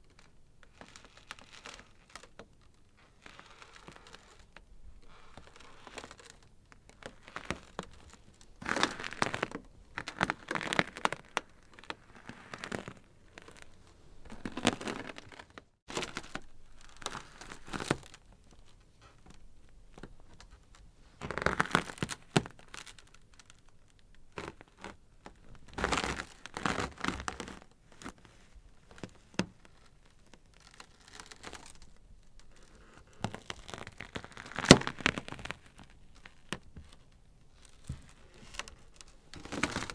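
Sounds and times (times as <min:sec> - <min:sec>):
ice crackling and popping: 0:03.2 - 0:18.7, 0:30.5 - 0:37.0, 0:37.6 - 0:39.9.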